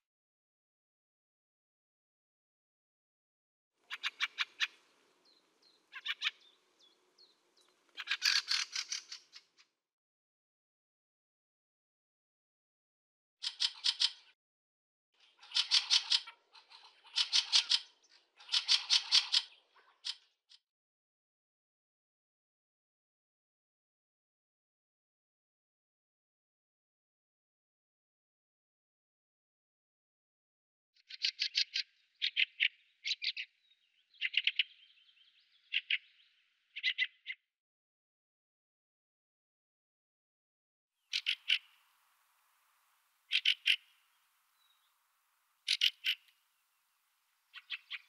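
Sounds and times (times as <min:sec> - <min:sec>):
bird harsh chattering call: 0:03.9 - 0:04.8, 0:05.9 - 0:06.6, 0:08.0 - 0:09.5, 0:13.4 - 0:14.3, 0:15.4 - 0:20.2, 0:41.1 - 0:41.9, 0:43.3 - 0:44.9, 0:45.6 - 0:46.4, 0:47.5 - 0:48.0.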